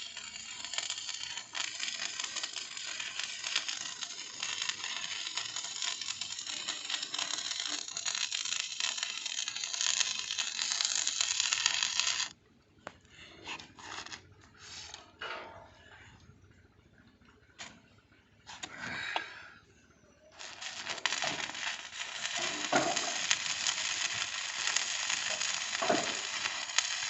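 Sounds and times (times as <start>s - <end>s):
arc welding crackling sizzle: 0.0s - 12.3s, 20.3s - 27.0s.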